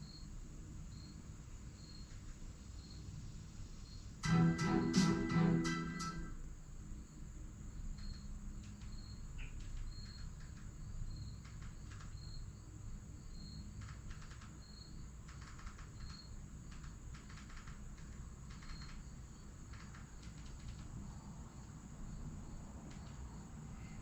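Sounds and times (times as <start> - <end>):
cricket chirping: 0.0 - 24.0
light clicking and rattling: 8.0 - 12.4, 13.6 - 21.0.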